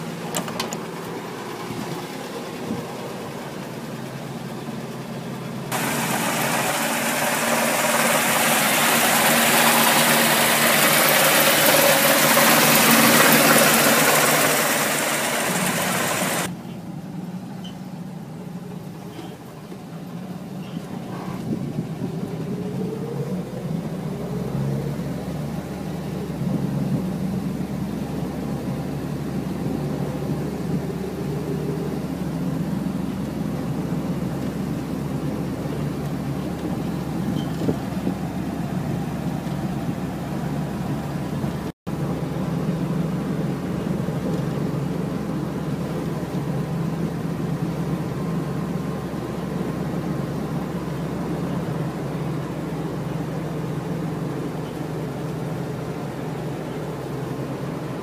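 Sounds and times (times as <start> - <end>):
car engine running: 0.0 - 16.5
loud steady hiss: 5.7 - 16.5.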